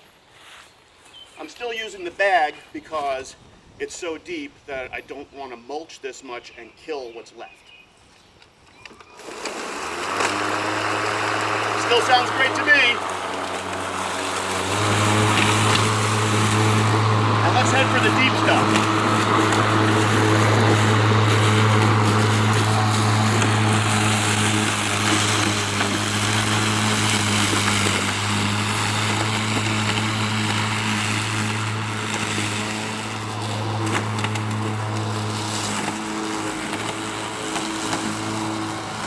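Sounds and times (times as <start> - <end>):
blade cutting grass: 8.7 - 39.0
electric lawn mower humming: 8.8 - 39.0.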